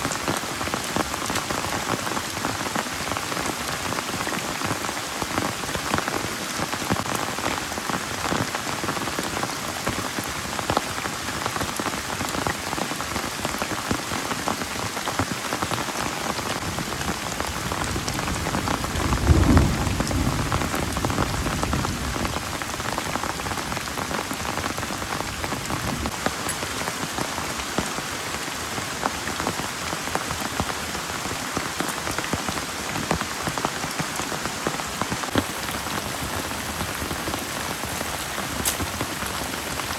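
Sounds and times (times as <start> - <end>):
heavy rain falling: 0.0 - 39.9
low rumble: 19.0 - 21.4.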